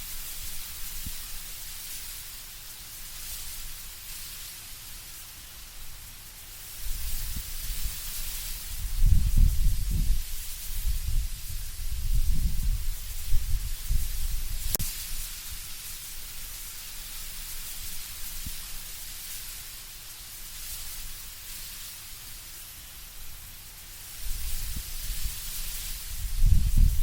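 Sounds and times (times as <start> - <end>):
leaves rustling in wind: 0.0 - 27.0
low rumbling wind gusts: 8.7 - 14.8, 26.0 - 27.0.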